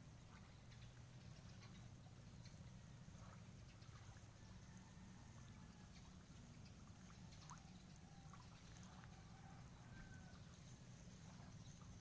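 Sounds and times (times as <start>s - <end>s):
faint low rumble: 0.0s - 12.0s.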